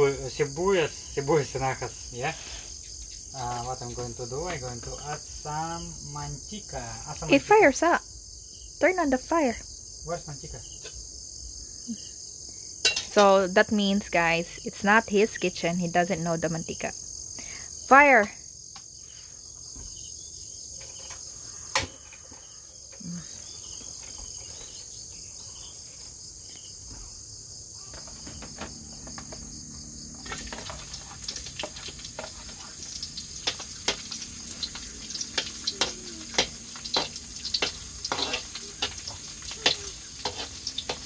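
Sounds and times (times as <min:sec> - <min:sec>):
insects trilling: 0:00.0 - 0:41.0
onion sizzling in oil: 0:30.0 - 0:41.0
metal spatula scraping wok: 0:30.2 - 0:41.0.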